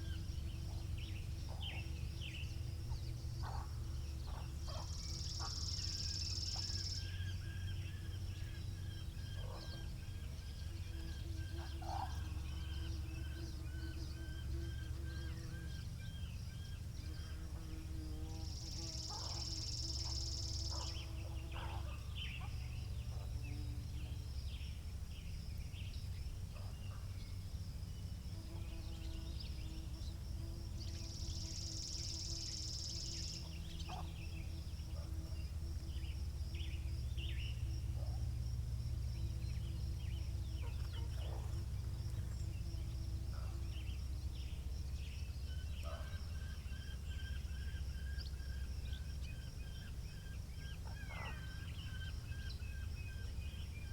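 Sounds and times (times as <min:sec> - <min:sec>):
small birds chirping: 0:00.0 - 0:38.2, 0:38.9 - 0:53.9
faint steady hum: 0:00.0 - 0:53.9.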